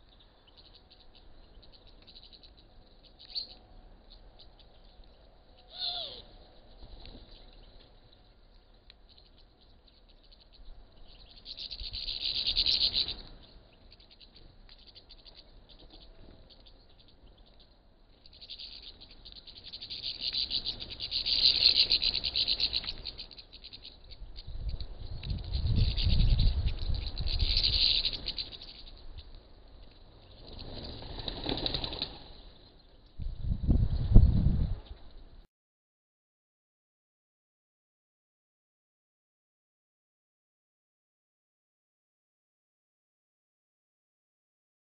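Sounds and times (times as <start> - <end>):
small birds chirping: 0.0 - 35.5.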